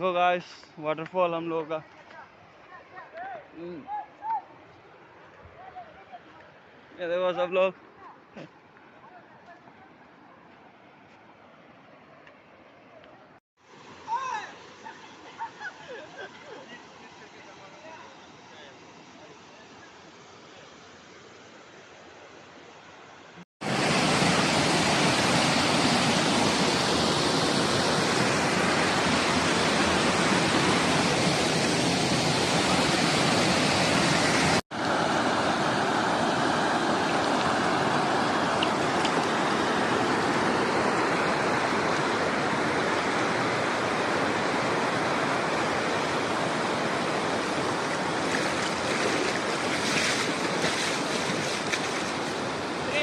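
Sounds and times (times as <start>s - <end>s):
waterfall rushing: 23.6s - 53.0s.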